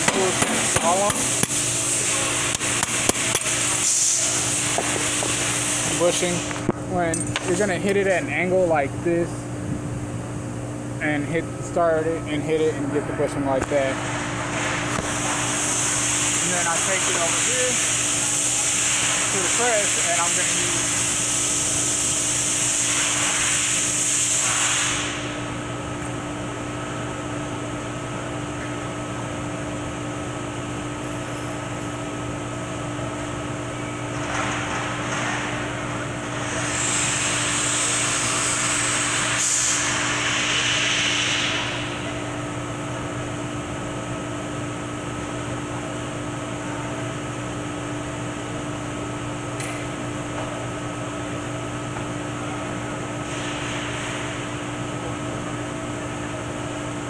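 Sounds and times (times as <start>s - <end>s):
steady machine hum: 0.0s - 57.0s
loud hissing bursts: 0.2s - 6.5s, 15.0s - 25.4s, 36.4s - 42.0s.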